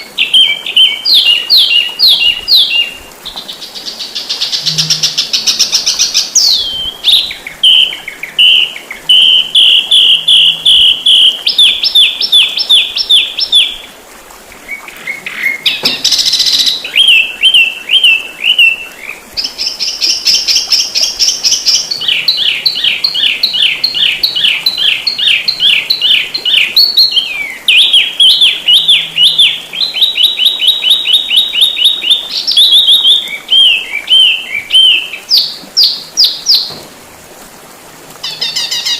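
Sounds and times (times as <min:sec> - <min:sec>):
songbird chirps and trills: 0:00.0 - 0:36.8, 0:38.2 - 0:38.9.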